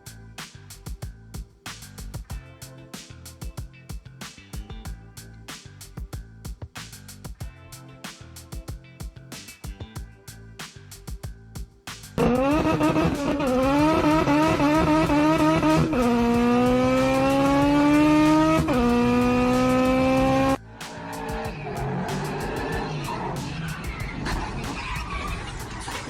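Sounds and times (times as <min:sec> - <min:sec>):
jumble of noise: 0:10.9 - 0:26.0
car engine accelerating hard: 0:12.2 - 0:26.0.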